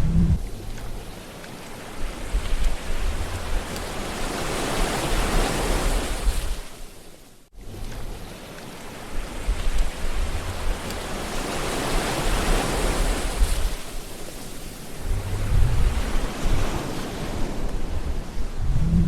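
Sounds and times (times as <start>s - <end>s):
wind rumble on microphone: 0.0s - 6.9s, 7.6s - 19.0s
sea waves breaking: 0.0s - 19.0s.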